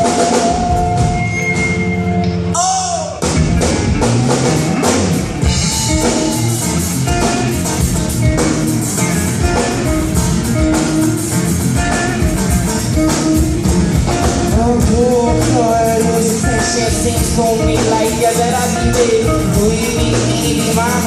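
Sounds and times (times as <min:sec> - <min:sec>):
drums: 0:00.0 - 0:21.0
electric guitar: 0:00.0 - 0:21.0
person singing: 0:14.1 - 0:21.0.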